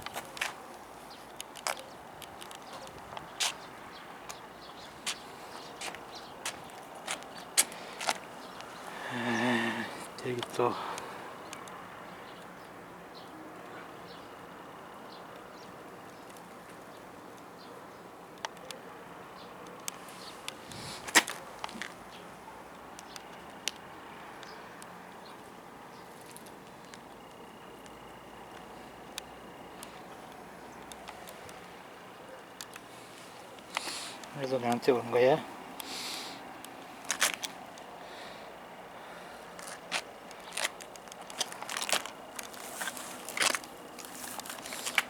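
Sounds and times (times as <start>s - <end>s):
faint background noise: 0.0s - 45.0s
faint ticks: 19.4s - 25.3s
pet crunching dry food: 39.6s - 45.0s.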